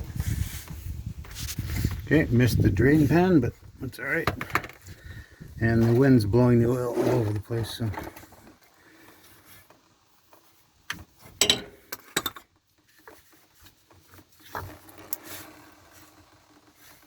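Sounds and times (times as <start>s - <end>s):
light rubbing and scraping: 0.1s - 11.4s, 12.8s - 17.0s.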